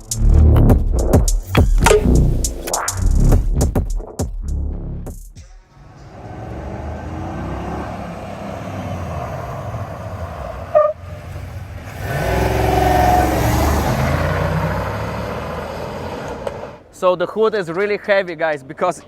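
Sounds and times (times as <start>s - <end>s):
car engine revving: 5.7s - 16.9s.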